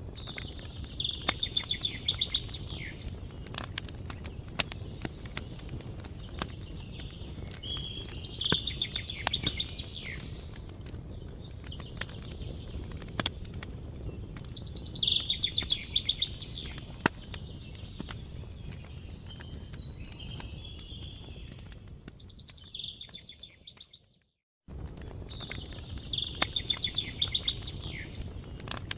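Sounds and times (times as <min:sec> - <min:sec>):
campfire crackling: 0:00.0 - 0:28.9
small bird chirping trill: 0:00.1 - 0:24.4, 0:25.1 - 0:28.9
songbird trilling: 0:00.4 - 0:03.1, 0:06.9 - 0:10.3, 0:14.6 - 0:17.0, 0:25.6 - 0:28.2.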